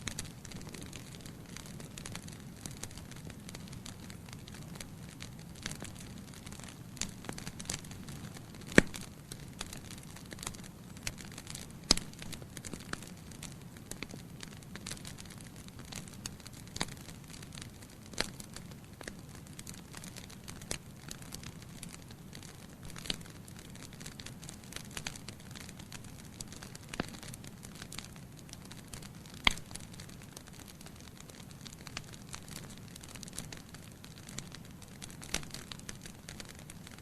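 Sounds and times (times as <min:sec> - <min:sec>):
logs crackling in fireplace: 0:00.0 - 0:37.0.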